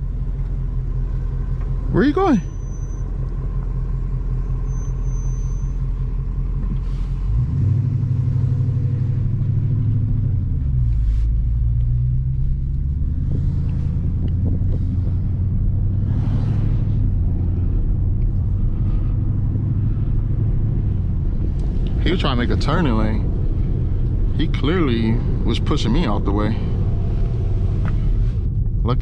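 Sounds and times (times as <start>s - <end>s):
car engine rumbling from inside cabin: 0.0s - 29.0s.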